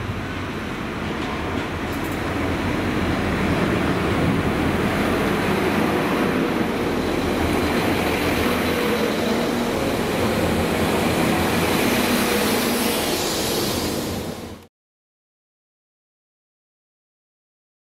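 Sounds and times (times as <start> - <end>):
train wheel and rail noise: 0.0 - 14.7.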